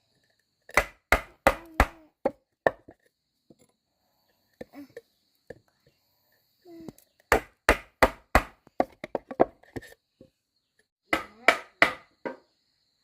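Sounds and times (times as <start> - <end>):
blade chopping wood: 0.7 - 2.9.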